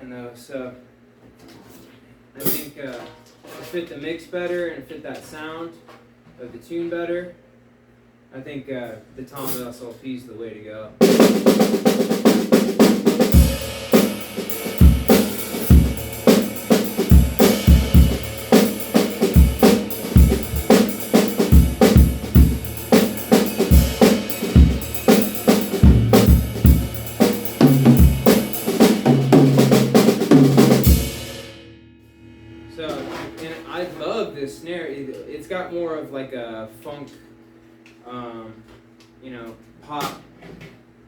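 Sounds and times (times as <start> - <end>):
drum kit groove: 11.0 - 31.6.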